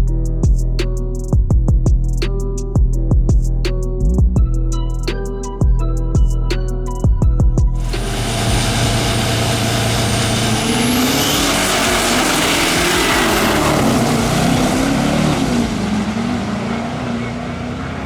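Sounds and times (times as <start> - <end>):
diesel truck engine running: 7.6 - 18.0.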